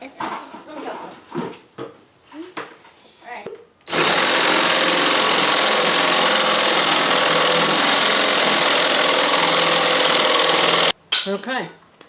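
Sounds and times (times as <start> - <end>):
power drill motor whine: 3.9 - 10.9.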